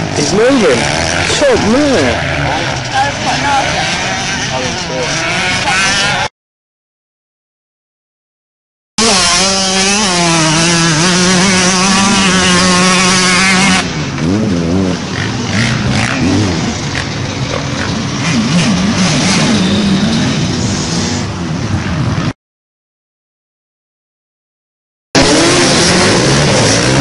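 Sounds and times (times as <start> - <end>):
two-stroke motocross bike revving: 0.0 - 6.3, 9.0 - 22.4, 25.2 - 27.0.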